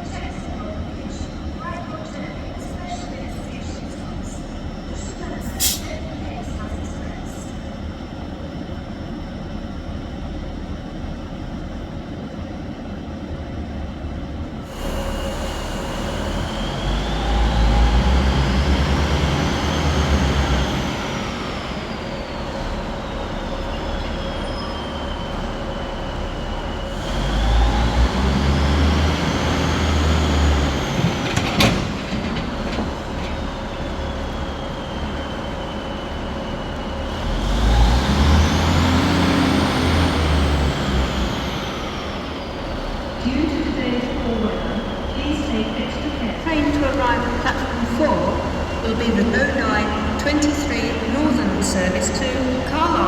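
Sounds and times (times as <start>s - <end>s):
train rumbling: 0.0s - 53.0s
traction motor whine: 14.7s - 53.0s.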